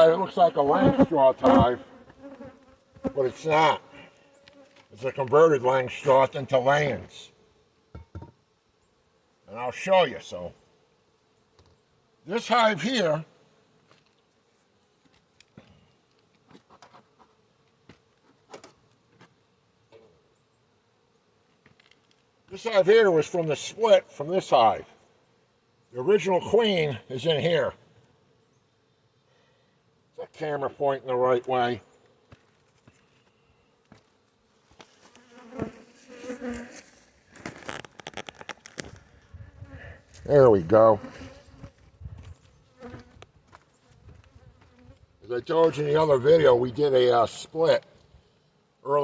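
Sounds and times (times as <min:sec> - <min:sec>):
honeybees buzzing: 0:00.0 - 0:05.2, 0:33.3 - 0:46.4.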